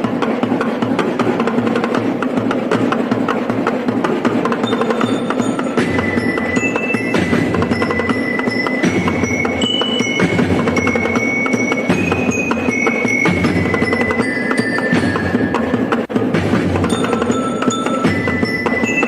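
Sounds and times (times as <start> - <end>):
ringing metallic notes: 4.6 - 16.1, 16.8 - 19.0.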